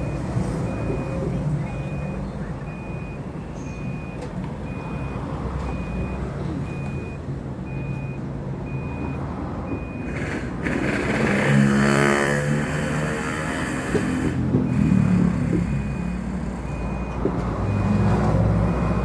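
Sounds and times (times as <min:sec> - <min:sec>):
reversing alarm beeps: 0:00.0 - 0:10.3, 0:14.6 - 0:19.0
vehicle engine hum: 0:00.0 - 0:19.0.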